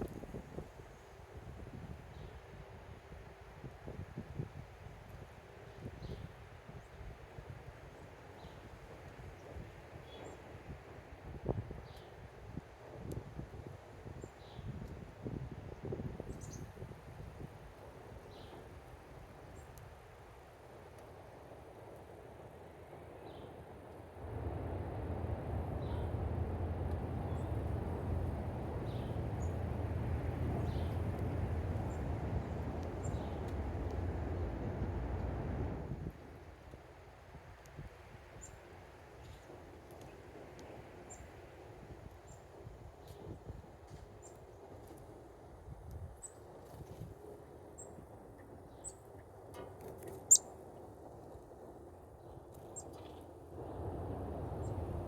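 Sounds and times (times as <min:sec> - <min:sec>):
faint low background hum: 0:11.4 - 0:55.0
low rumble: 0:24.1 - 0:36.0
small birds chirping: 0:27.0 - 0:34.7.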